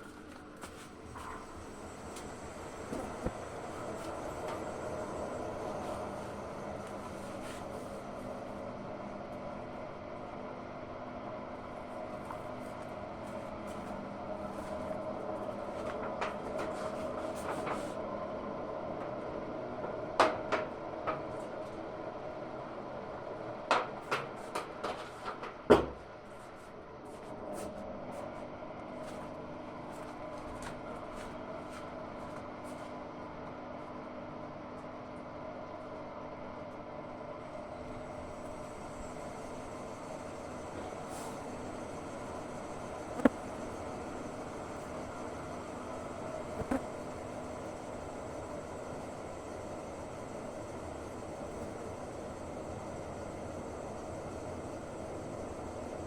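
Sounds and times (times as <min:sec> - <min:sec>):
washing machine motor humming: 0:01.1 - 0:10.6.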